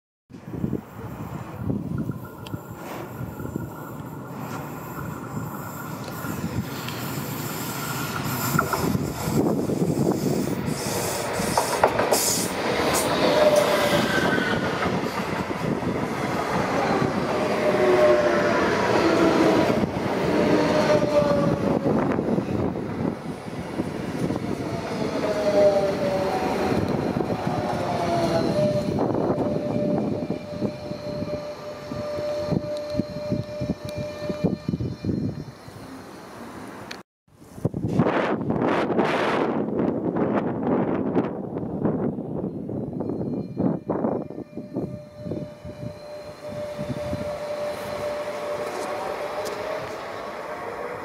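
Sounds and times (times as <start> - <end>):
train wheels rushing on rail: 0.4 - 37.0, 37.7 - 51.0
high wheel squeals: 2.2 - 22.8, 24.2 - 36.9, 42.4 - 51.0.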